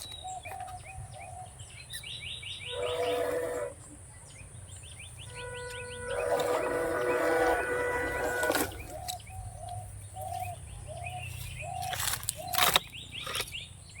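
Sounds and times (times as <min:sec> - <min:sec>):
faint bird chirping: 0:00.0 - 0:14.0
bird calling repeated note: 0:02.6 - 0:03.8, 0:05.2 - 0:09.2.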